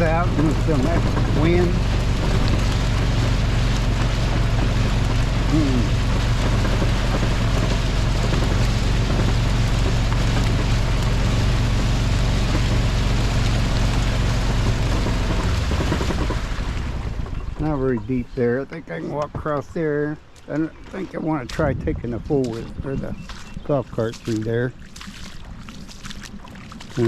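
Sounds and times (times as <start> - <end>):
creek water rushing: 0.0 - 17.2.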